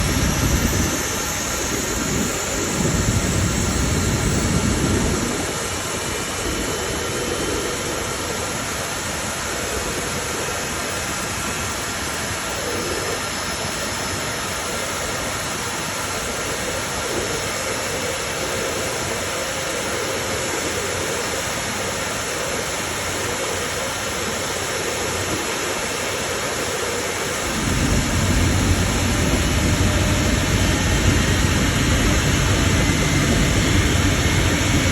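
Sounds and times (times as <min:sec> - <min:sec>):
jet engine rushing: 0:00.0 - 0:34.9
deep rumble: 0:27.4 - 0:34.9.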